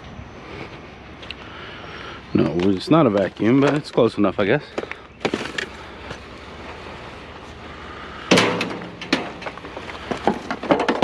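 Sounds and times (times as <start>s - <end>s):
loud metallic clang: 8.3s - 9.4s
junk knocking: 8.3s - 11.0s.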